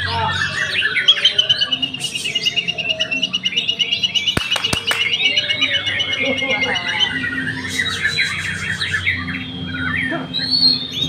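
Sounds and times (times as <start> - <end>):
sharp clicks: 4.4 - 5.1.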